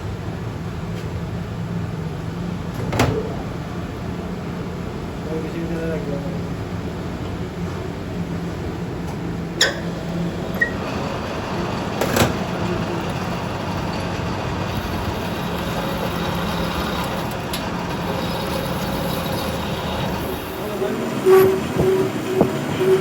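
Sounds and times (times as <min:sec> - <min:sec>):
machinery humming: 0:03.4 - 0:23.0.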